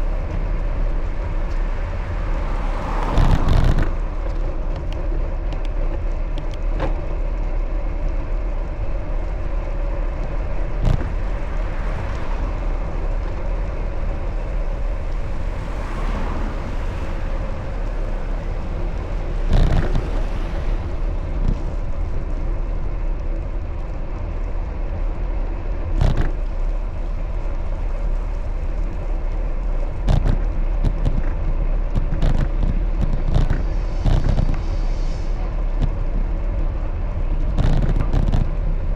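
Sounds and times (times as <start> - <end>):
bicycle rolling rumble: 0.0 - 38.9
car passing: 0.0 - 38.9.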